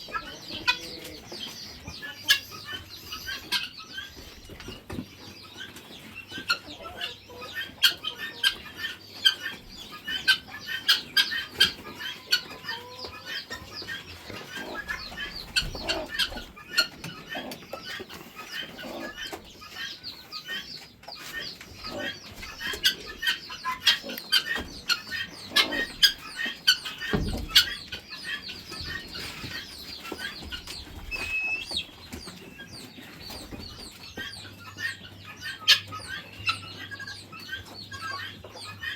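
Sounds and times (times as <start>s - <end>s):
poultry chirping and clucking: 0.0s - 38.9s.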